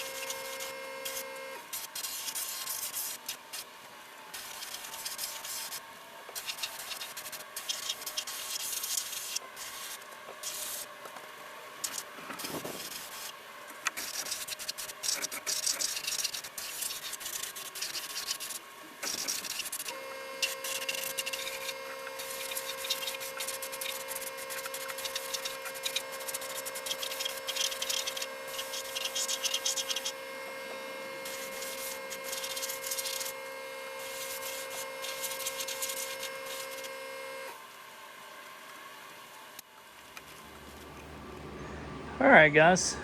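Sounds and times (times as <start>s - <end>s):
steady machine hum: 40.0s - 43.0s.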